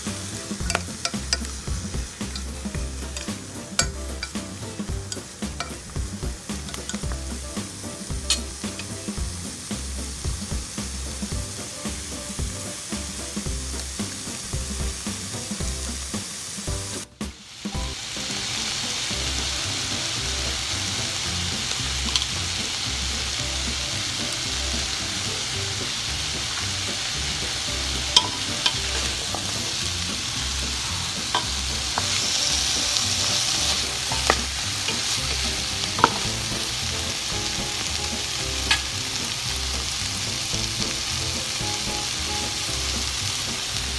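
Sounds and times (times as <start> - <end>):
wooden spatula stirring: 0.0 - 8.4, 25.9 - 38.8
chicken sizzling in oil: 0.0 - 43.9.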